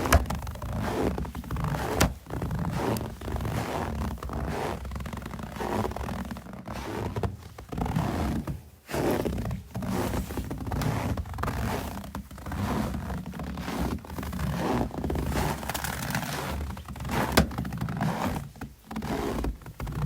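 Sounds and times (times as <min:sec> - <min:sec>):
footsteps crunching in snow: 0:00.0 - 0:19.4.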